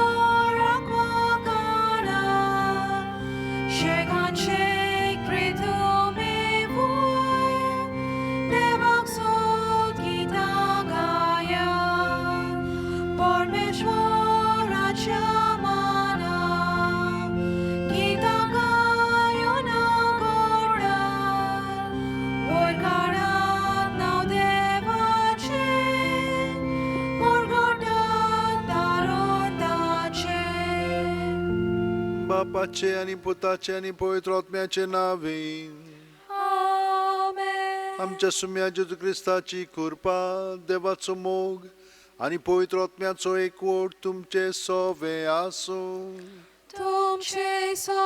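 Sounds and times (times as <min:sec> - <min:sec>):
people singing a hymn: 0:00.0 - 0:33.5, 0:36.3 - 0:38.9, 0:46.7 - 0:48.0
sustained keyboard accompaniment: 0:00.0 - 0:33.7.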